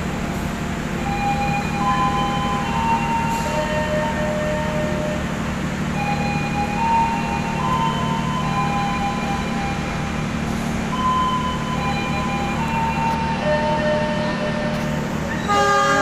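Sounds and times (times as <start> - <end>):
diesel train hum: 0.0 - 16.0.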